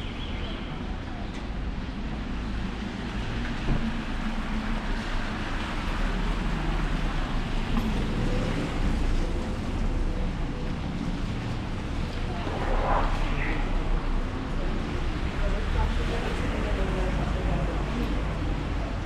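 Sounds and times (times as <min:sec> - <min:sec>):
low rumble: 0:08.2 - 0:15.8.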